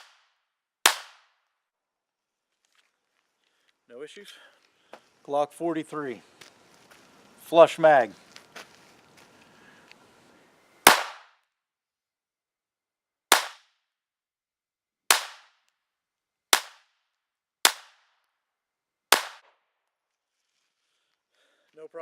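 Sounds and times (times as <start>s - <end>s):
pistol shots: 0.9s - 1.3s, 10.8s - 11.4s, 13.3s - 13.6s, 15.1s - 15.5s, 19.1s - 19.5s.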